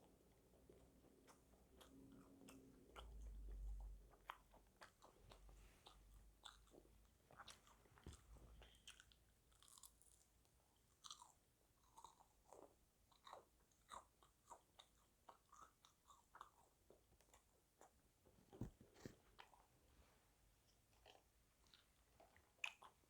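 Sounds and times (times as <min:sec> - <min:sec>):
chewing crunchy food: 0:00.0 - 0:19.9, 0:20.6 - 0:23.0.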